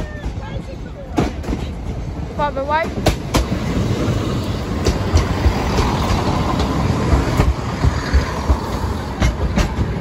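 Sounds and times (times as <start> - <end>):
train rumbling past: 0.0 - 10.0
wheel clicks over rail joints: 4.7 - 10.0.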